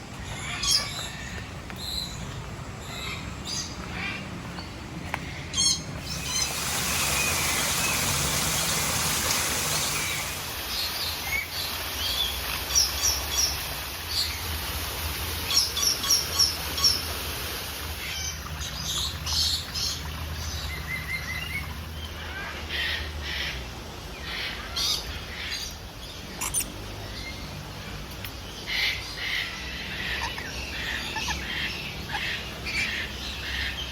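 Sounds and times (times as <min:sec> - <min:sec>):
birds chirping and calling: 0:00.0 - 0:14.4, 0:24.2 - 0:33.9
steady hiss: 0:06.0 - 0:18.9.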